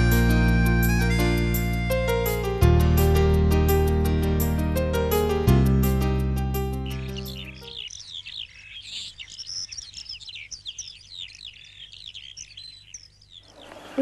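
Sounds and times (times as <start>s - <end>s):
birds chirping: 6.4s - 14.0s.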